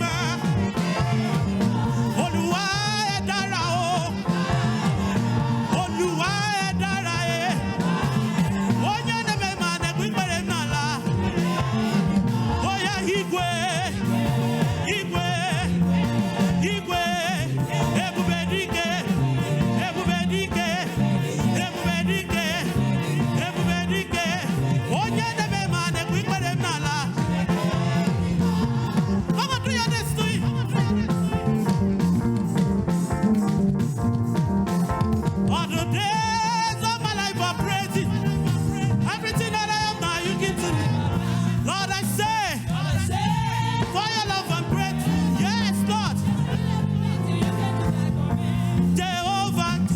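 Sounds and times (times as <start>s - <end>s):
band playing with bass line: 0.0s - 49.9s
voices singing gospel: 0.0s - 49.9s.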